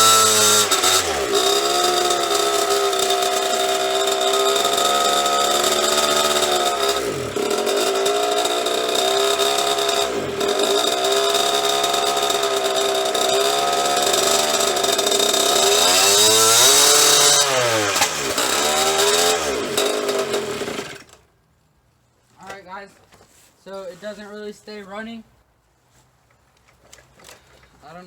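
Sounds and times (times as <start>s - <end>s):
small two-stroke engine revving: 0.0s - 21.2s.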